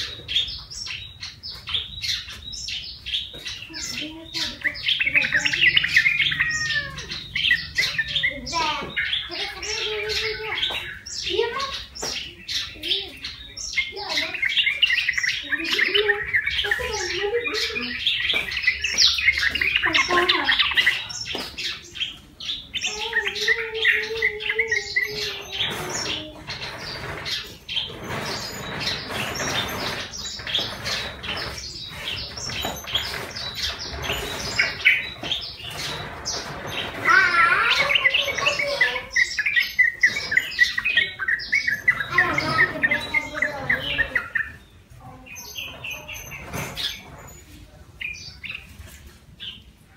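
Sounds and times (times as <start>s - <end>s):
bulbul chattering: 0.0s - 48.7s.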